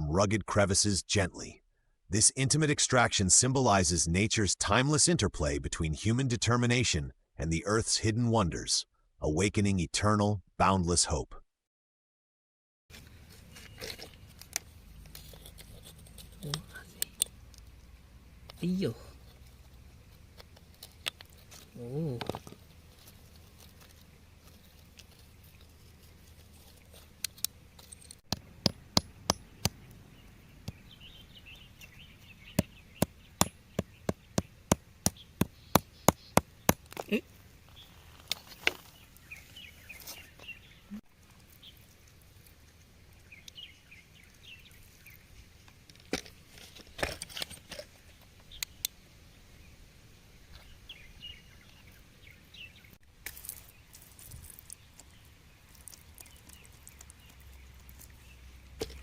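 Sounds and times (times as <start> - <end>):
hand tool tapping rock: 28.2 - 29.8, 32.6 - 37.1.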